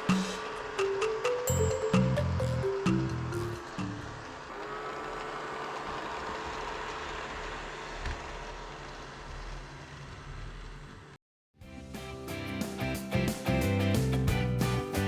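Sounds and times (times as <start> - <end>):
robot vacuum cleaner running: 3.1 - 10.9.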